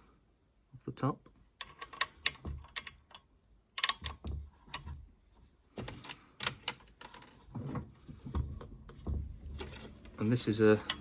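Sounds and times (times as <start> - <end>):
handling clicks and taps: 1.2 - 5.0
dull knocks: 7.5 - 10.0.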